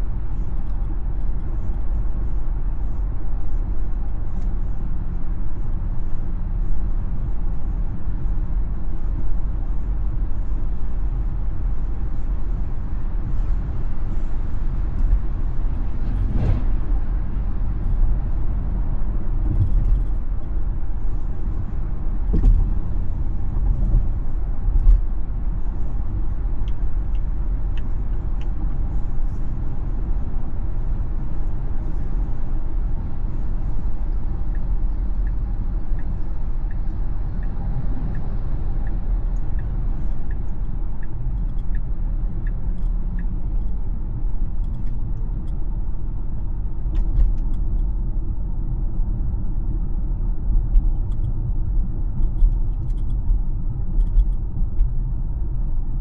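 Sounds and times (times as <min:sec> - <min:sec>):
road and tyre rumble: 0:00.0 - 0:56.0
turn signal ticking: 0:33.3 - 0:43.8.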